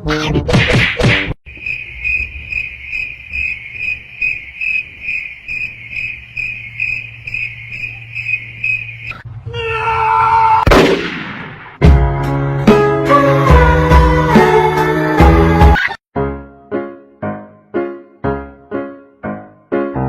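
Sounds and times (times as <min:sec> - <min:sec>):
cricket chirping: 0:01.4 - 0:09.2.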